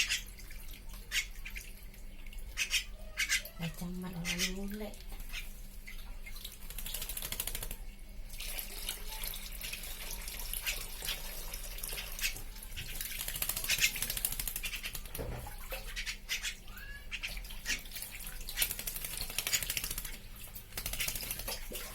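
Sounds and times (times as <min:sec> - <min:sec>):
bird splashing water: 0:00.0 - 0:21.9.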